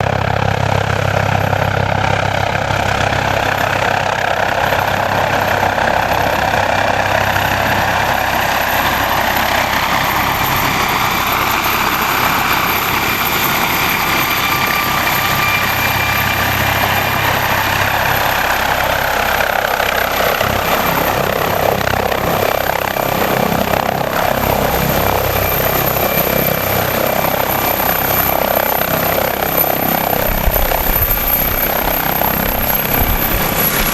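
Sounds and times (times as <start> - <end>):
helicopter running: 0.0 - 33.9
thin high whine: 26.8 - 33.9.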